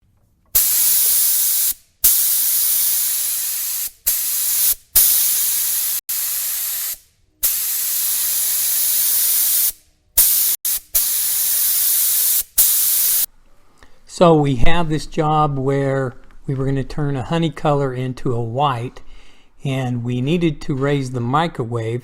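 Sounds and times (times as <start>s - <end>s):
paint spray gun hissing: 0.6s - 13.3s.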